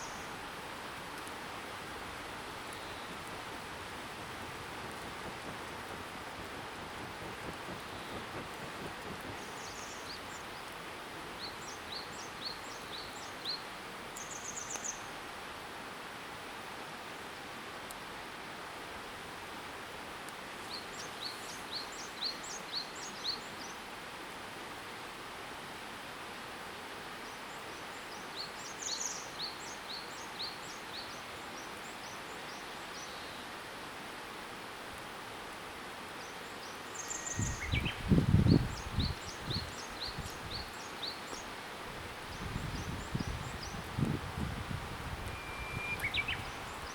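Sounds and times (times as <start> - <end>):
river water rushing: 0.0 - 14.2
wind: 0.0 - 46.9
small songbird chirping: 36.2 - 41.6, 45.2 - 46.9.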